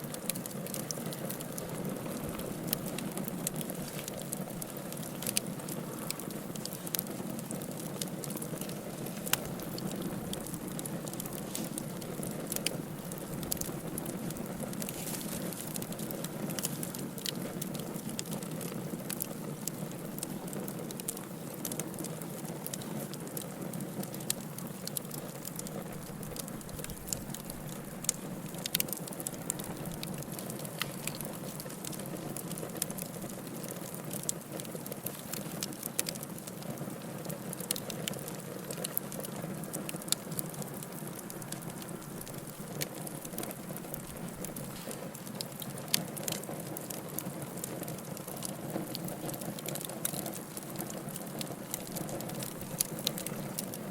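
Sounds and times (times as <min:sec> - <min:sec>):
fire crackling and popping: 0:00.0 - 0:53.9
flames rushing: 0:00.1 - 0:21.9.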